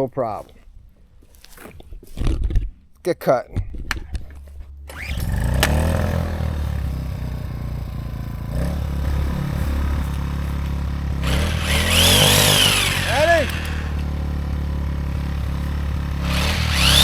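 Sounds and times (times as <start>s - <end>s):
generator engine running: 4.9s - 17.0s
loud hissing noise: 11.2s - 14.0s.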